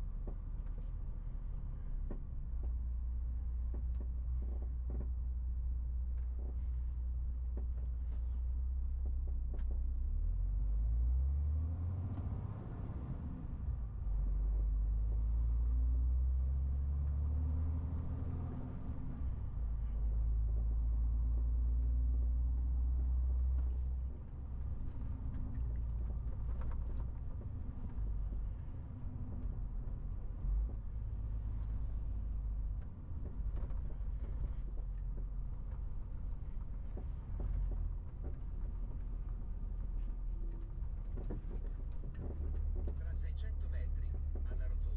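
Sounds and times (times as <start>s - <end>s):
faint clicks and knocks: 2.0s - 5.4s, 6.0s - 10.1s, 23.4s - 43.2s.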